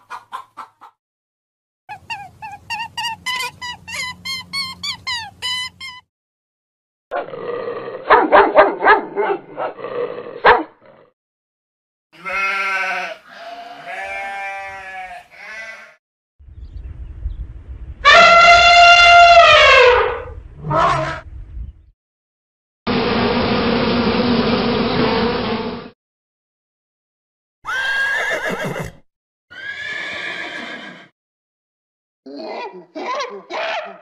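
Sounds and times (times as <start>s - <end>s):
chickens clucking: 0.0s - 1.0s
bleating calls: 12.2s - 16.0s
low rumble: 16.4s - 18.1s
elephant trumpeting: 18.0s - 21.2s.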